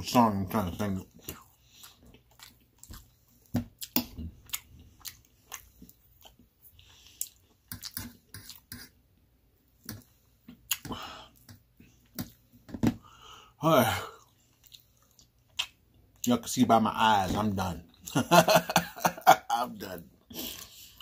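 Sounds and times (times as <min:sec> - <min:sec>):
chewing and lip smacking: 0:01.1 - 0:08.7, 0:09.9 - 0:12.4, 0:14.2 - 0:16.3.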